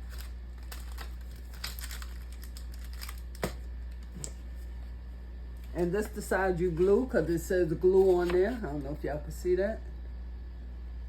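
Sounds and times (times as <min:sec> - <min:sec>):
paper wrapper crinkling: 0:00.0 - 0:04.7, 0:05.6 - 0:08.9
steady low hum: 0:00.0 - 0:11.0.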